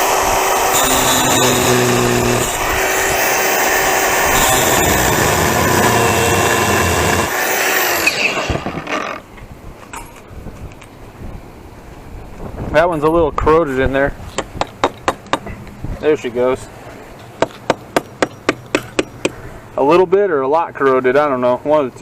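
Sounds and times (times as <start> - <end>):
power tool running: 0.0 - 9.3.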